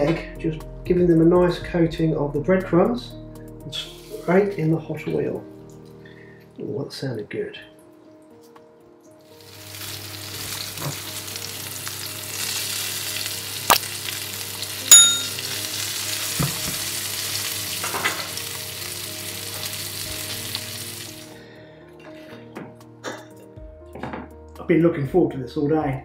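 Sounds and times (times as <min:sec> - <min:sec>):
fish sizzling in a frying pan: 0:09.2 - 0:21.4.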